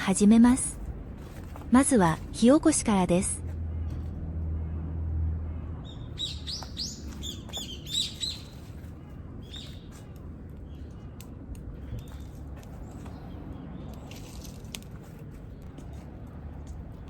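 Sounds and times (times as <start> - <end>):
low outdoor background hum: 0.0 - 17.0
bird chirping: 5.8 - 8.8, 9.4 - 11.2.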